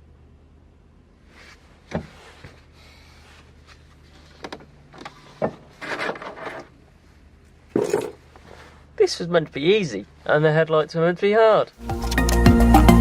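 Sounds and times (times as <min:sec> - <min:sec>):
scraping rustle: 0:01.3 - 0:07.1.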